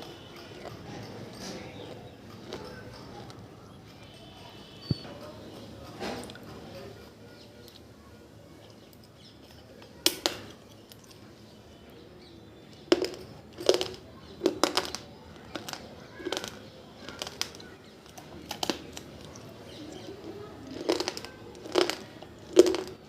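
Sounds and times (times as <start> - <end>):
clay lamp crunching and cracking: 8.8 - 11.3, 12.6 - 23.0.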